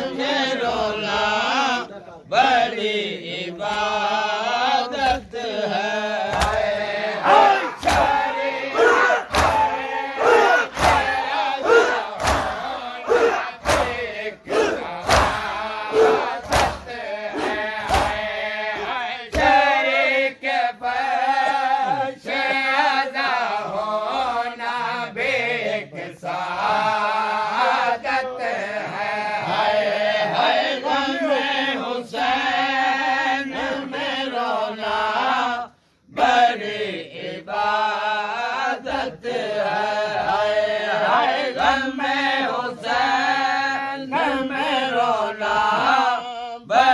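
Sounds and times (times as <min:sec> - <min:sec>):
men chanting in a group: 0:00.0 - 0:46.9
rhythmic chest-beating strikes: 0:06.3 - 0:19.6.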